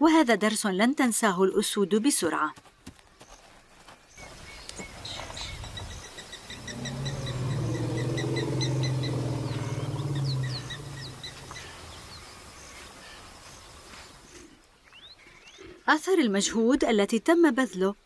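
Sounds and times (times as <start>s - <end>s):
birds chirping: 4.1s - 15.8s
low call of large animal: 6.5s - 11.8s.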